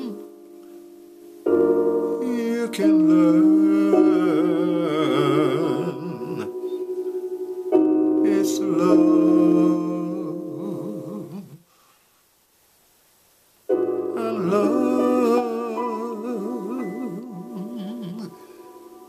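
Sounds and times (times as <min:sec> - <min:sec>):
electric keyboard chords with vibrato: 0:00.0 - 0:11.5.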